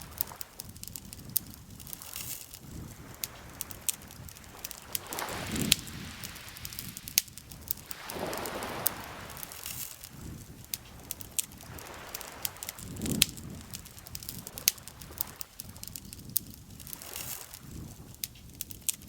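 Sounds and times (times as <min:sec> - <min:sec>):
campfire crackling: 0:00.0 - 0:19.0
lake water lapping gently: 0:00.0 - 0:19.0.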